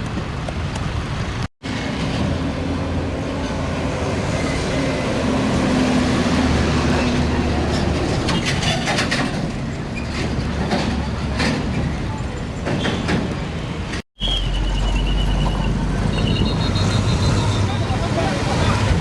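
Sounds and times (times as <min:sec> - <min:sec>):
traffic: 0:00.0 - 0:19.0
diesel truck engine passing: 0:01.7 - 0:08.3.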